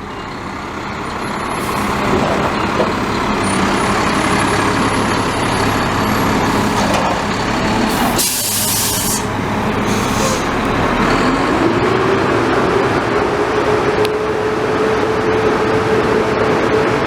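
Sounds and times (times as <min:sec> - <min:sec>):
diesel truck engine running: 0:00.0 - 0:17.0
air brake hiss: 0:07.9 - 0:10.6.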